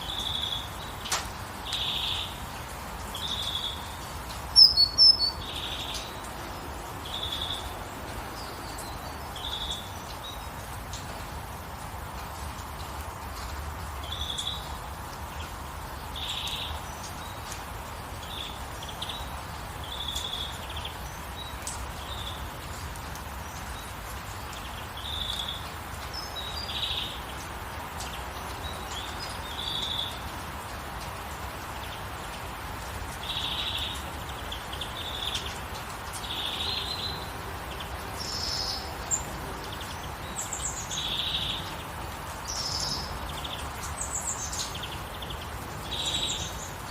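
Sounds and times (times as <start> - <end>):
birds chirping: 0.0 - 11.0
light rain hiss: 0.0 - 46.9.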